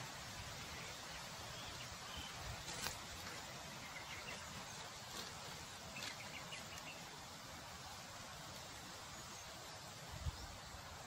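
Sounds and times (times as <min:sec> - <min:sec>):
outdoor hiss: 0:00.0 - 0:11.0
faint bird chirps: 0:00.5 - 0:07.2.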